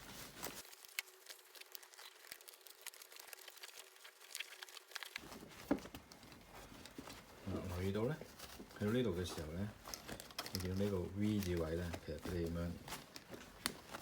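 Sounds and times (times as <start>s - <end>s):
light rustling: 4.3s - 14.0s.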